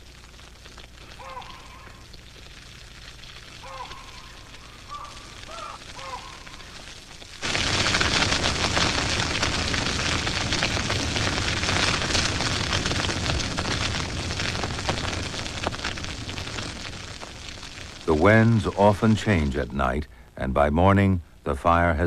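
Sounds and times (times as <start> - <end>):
grass fire crackling: 0.0 - 22.0
faint chirps: 1.0 - 2.2, 3.5 - 6.9.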